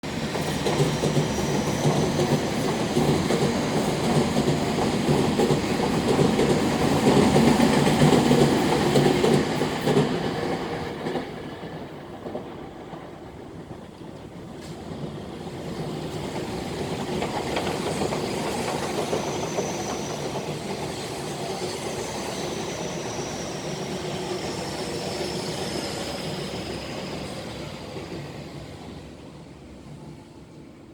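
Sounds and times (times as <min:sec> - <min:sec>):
train wheels clattering over rail joints: 0:15.7 - 0:21.6.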